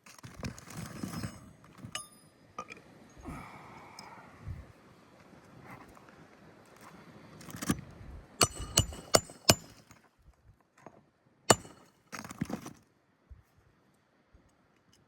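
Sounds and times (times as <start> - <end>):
shingles scraping and rustling: 0.0 - 1.9
metal on metal strikes: 2.0 - 2.4, 8.4 - 9.8, 11.5 - 11.9.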